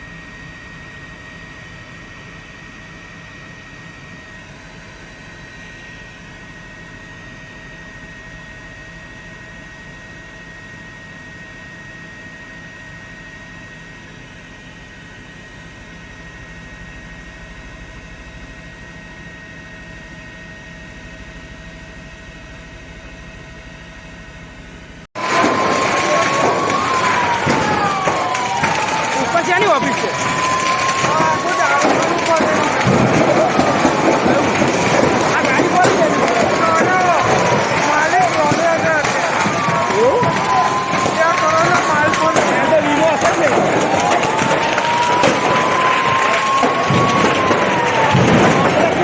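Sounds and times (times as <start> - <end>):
engine drone with high whine: 0.0 - 49.0
siren rising in pitch: 25.2 - 49.0.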